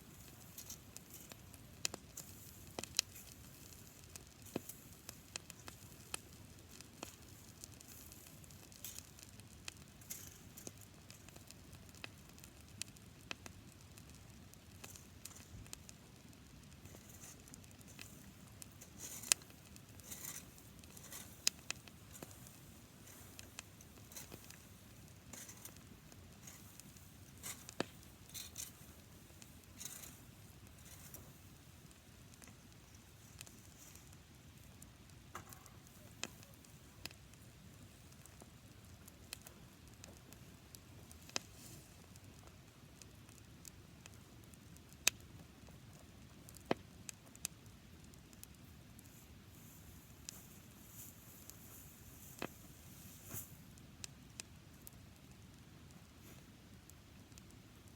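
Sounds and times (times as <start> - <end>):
campfire crackling and popping: 0.0 - 57.9
faint fire hiss: 0.0 - 57.9.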